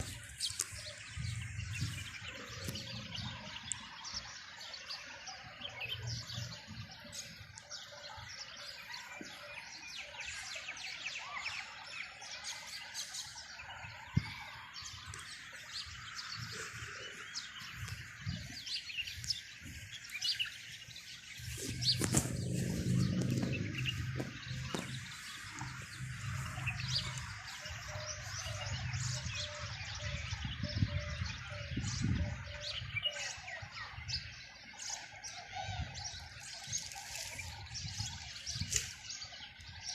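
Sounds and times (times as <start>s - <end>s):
small birds chirping: 0.0s - 39.9s
low hum: 21.3s - 29.3s.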